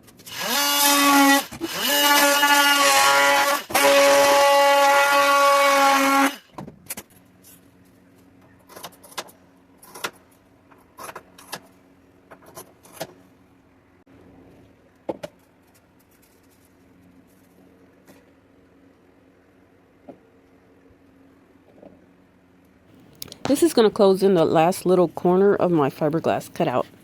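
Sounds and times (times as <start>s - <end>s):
power tool whining: 0.2s - 6.5s.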